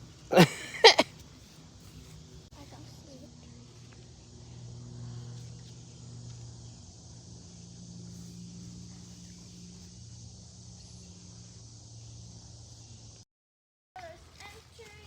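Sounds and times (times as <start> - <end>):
insects buzzing: 0.0 - 13.2.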